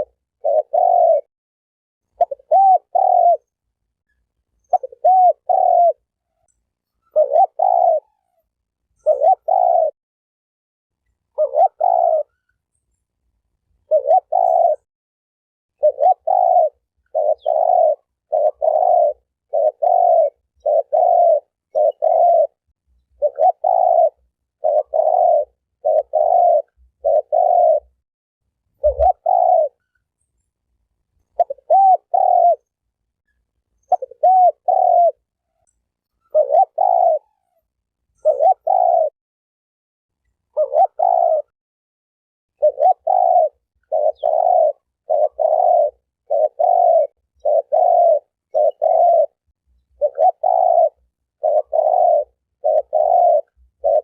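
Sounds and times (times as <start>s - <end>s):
dove cooing: 0.0s - 1.3s, 2.1s - 3.6s, 4.6s - 10.0s, 11.3s - 12.6s, 13.8s - 14.9s, 15.8s - 22.6s, 23.2s - 28.0s, 28.7s - 30.0s, 31.2s - 32.8s, 33.8s - 35.6s, 36.2s - 39.2s, 40.4s - 41.5s, 42.6s - 54.0s.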